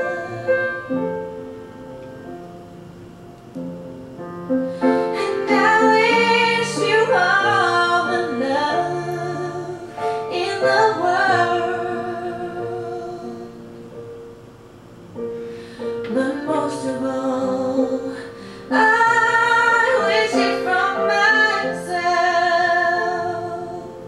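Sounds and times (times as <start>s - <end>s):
woman singing a slow ballad: 0.0s - 1.0s, 5.1s - 13.6s, 16.0s - 24.0s
soft piano: 0.0s - 24.0s.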